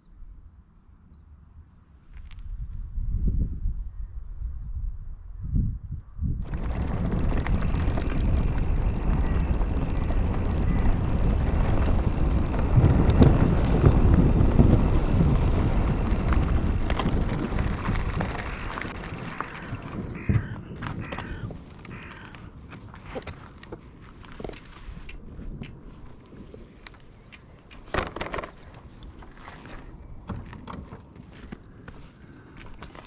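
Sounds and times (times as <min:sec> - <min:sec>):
wind buffeting microphone: 0:02.3 - 0:33.0
bike tyre noise on trail: 0:06.4 - 0:33.0
bird calling: 0:07.6 - 0:22.4.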